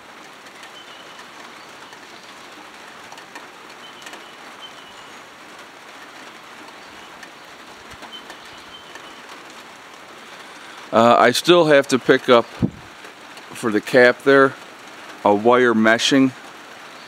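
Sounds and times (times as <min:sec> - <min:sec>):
steady rain falling: 0:00.0 - 0:17.0
drops ticking on wet surfaces: 0:00.1 - 0:10.9, 0:11.5 - 0:15.3
bird chirping faintly: 0:00.5 - 0:02.7, 0:03.7 - 0:05.3, 0:06.6 - 0:09.6.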